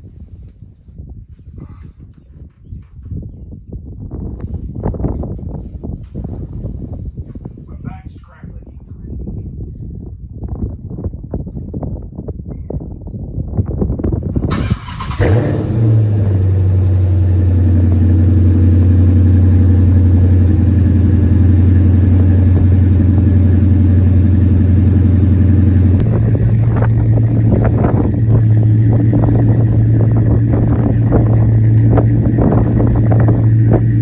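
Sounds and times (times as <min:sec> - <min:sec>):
engine starter cranking: 0:14.5 - 0:17.3
loud engine idling: 0:14.5 - 0:34.0.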